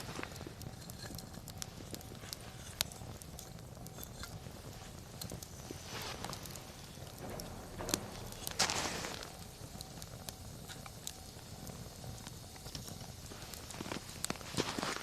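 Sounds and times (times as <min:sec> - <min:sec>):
campfire crackling: 0:00.0 - 0:15.0
sharp fire pops: 0:00.0 - 0:15.0.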